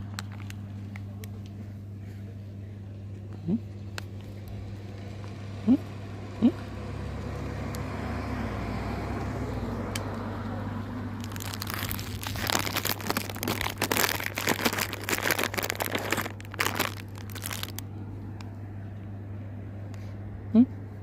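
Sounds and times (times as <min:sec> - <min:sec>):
dense crinkling and crunching: 0:00.0 - 0:01.5, 0:11.2 - 0:18.0
low hum: 0:00.0 - 0:21.0.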